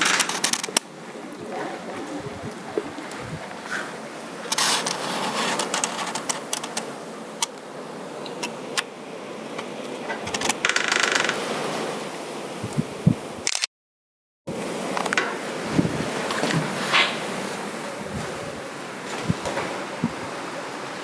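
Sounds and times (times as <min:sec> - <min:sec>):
lens autofocus clicking and grinding: 0:13.4 - 0:13.7.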